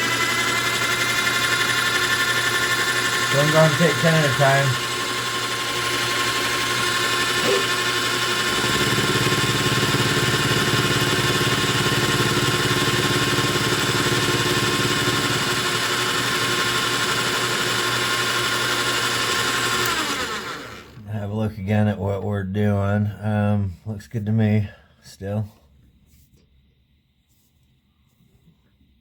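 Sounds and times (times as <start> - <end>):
metal lathe whining: 0.0 - 21.0.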